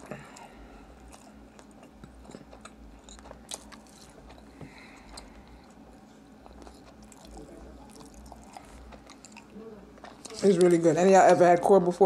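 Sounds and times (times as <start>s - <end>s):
wet chewing with crunchy clicks: 0.3s - 10.8s.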